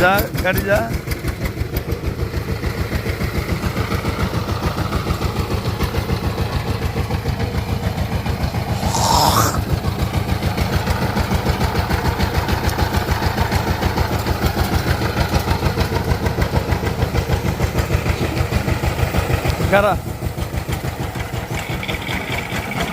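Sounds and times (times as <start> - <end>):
rising hiss: 8.8 - 9.6.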